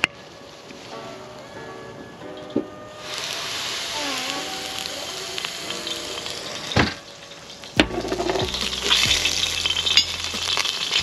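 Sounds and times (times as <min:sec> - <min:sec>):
food sizzling in a wok: 0:02.9 - 0:11.0.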